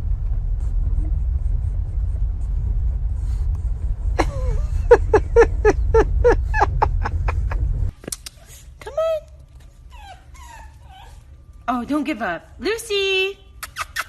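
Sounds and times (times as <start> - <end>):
low rumble: 0.0 - 13.6
dog whining and yelping: 9.8 - 11.6.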